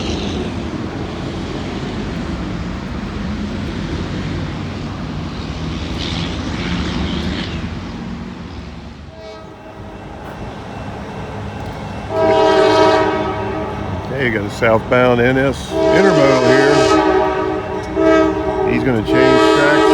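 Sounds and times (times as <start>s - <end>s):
diesel train rumbling: 0.0s - 19.9s
faint train horn: 9.1s - 19.9s.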